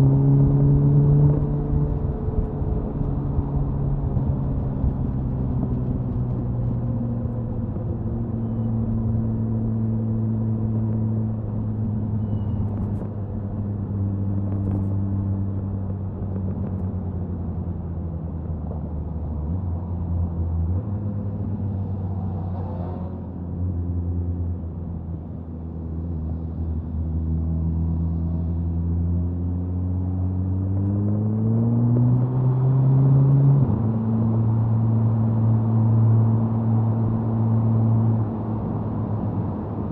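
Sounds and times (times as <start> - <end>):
wind noise: 0.0 - 9.5
motorcycle exhaust cruising: 0.0 - 39.9.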